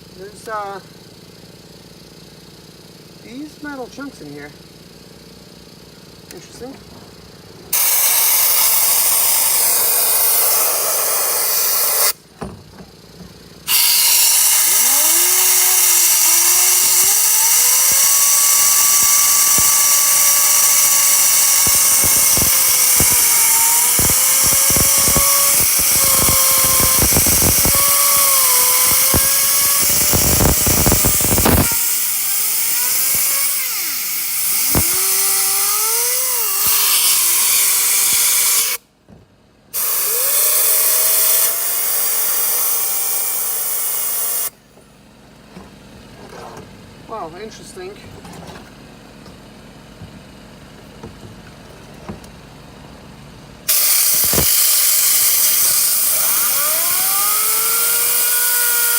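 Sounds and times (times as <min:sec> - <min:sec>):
turbocharger whine: 0:00.0 - 0:12.3, 0:13.5 - 0:38.9, 0:53.6 - 0:58.9
compressed air hissing: 0:07.7 - 0:12.2, 0:13.7 - 0:38.8, 0:39.8 - 0:44.6, 0:53.7 - 0:58.9.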